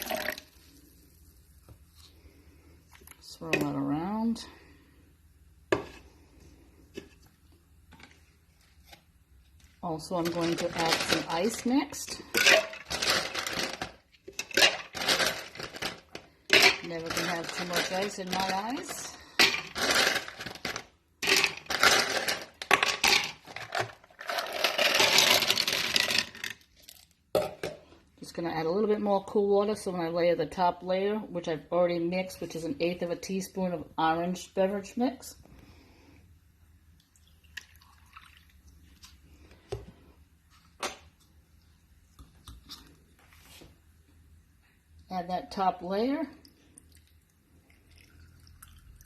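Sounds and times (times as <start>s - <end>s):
ice cubes clattering into cup: 10.2s - 27.1s
water dripping into ice cup: 37.0s - 38.8s, 46.4s - 49.0s.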